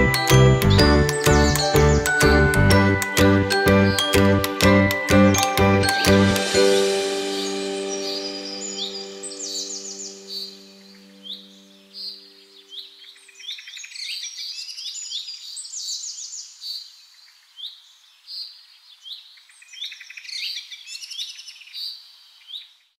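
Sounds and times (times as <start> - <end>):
songbirds chirping and trilling: 6.8 - 22.9.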